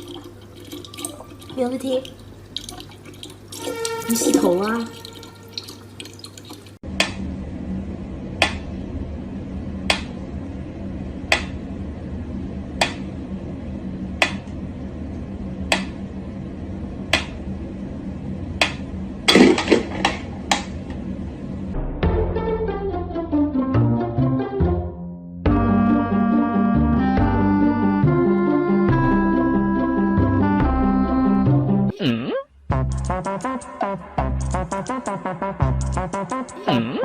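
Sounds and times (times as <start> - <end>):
low hum: 6.8 - 23.3.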